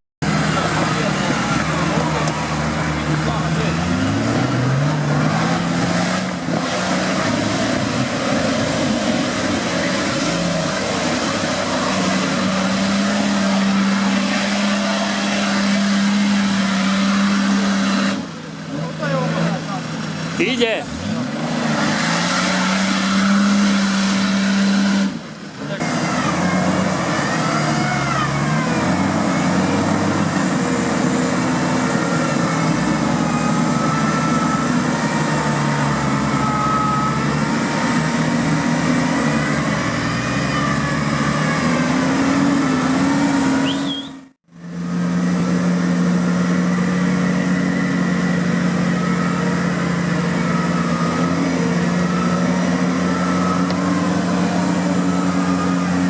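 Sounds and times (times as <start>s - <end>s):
off-road vehicle engine revving: 0.2s - 56.0s.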